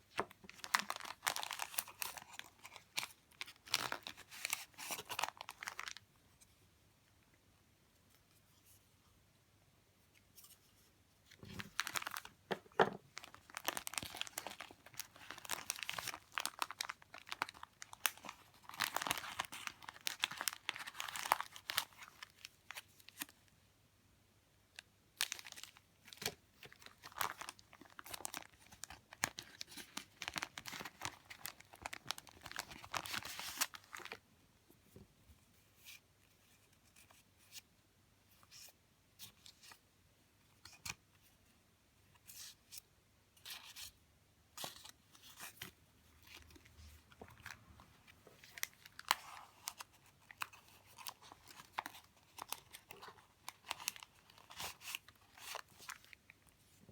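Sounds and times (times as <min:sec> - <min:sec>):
paper and plastic crinkling: 0:00.1 - 0:06.0, 0:11.3 - 0:23.3, 0:25.2 - 0:34.2, 0:44.6 - 0:56.9.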